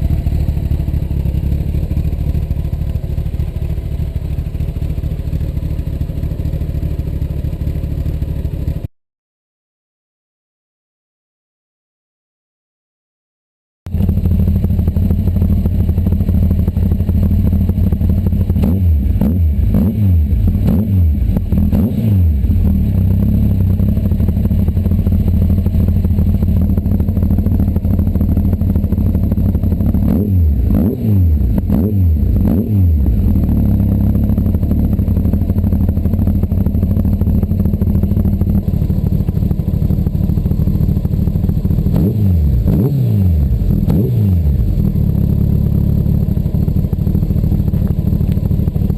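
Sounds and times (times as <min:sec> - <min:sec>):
motorcycle engine idling: 0:00.0 - 0:08.9, 0:13.9 - 0:48.9
engine throttle revs: 0:18.5 - 0:23.7, 0:29.9 - 0:33.9, 0:41.8 - 0:45.4.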